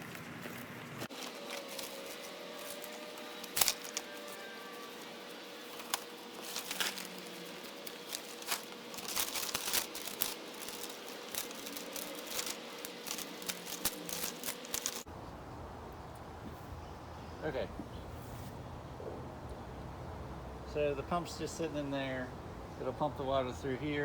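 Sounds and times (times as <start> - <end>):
plastic sheeting crinkling: 0.0 - 15.1.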